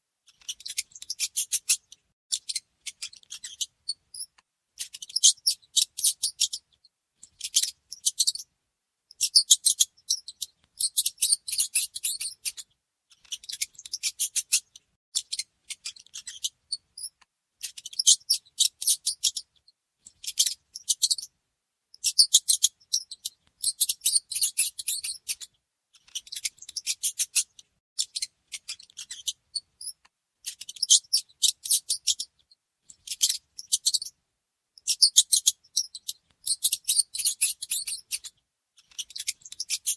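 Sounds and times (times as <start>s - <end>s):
mouse squeaks: 0.3s - 8.5s, 9.1s - 21.3s, 21.9s - 34.2s, 34.8s - 39.9s.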